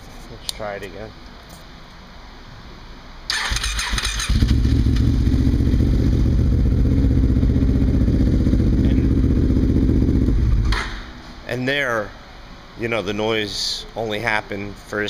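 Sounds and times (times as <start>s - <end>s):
engine cranking with hissy noise: 3.3s - 5.3s
engine idling: 4.3s - 10.7s.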